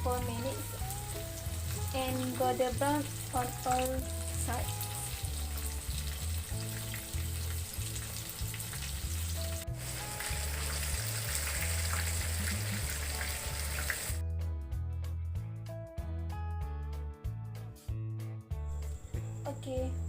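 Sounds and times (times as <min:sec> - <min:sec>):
chicken deep-frying in oil: 0:00.0 - 0:14.2.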